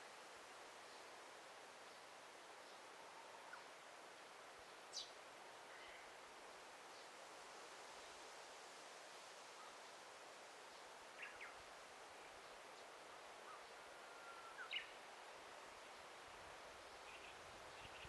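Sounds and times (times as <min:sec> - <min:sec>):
faint steady background hiss: 0:00.0 - 0:18.0
songbird calls: 0:04.9 - 0:06.2, 0:10.7 - 0:11.6, 0:12.2 - 0:15.1, 0:17.0 - 0:18.0.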